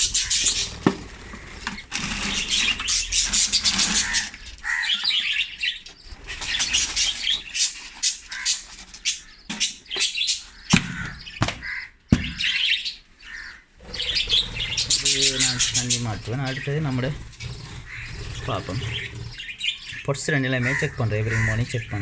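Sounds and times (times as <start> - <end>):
budgerigars chirping and chattering: 0.0 - 22.0
sharp knocks: 10.7 - 12.6.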